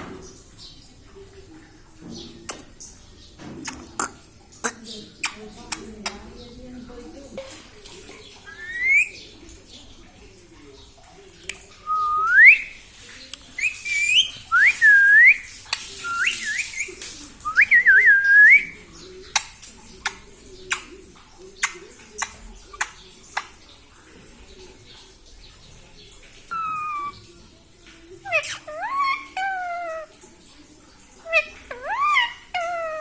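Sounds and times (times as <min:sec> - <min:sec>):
parrot whistling: 0:08.5 - 0:09.2, 0:11.8 - 0:12.7, 0:13.6 - 0:15.4, 0:16.0 - 0:18.7, 0:26.5 - 0:27.2.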